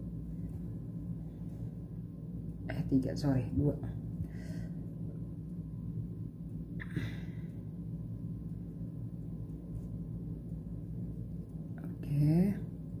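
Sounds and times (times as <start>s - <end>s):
low background hum: 0.0s - 13.0s
soft breath: 4.2s - 4.9s.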